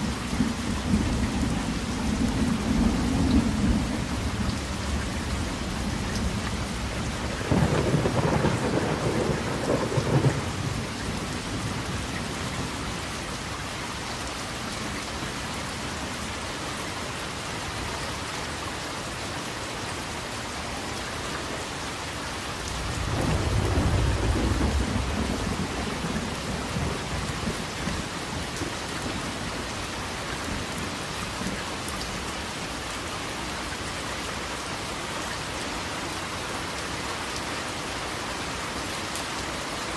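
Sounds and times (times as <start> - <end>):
steady rain: 0.0 - 39.9
rolling thunder: 7.2 - 12.0, 22.8 - 29.2.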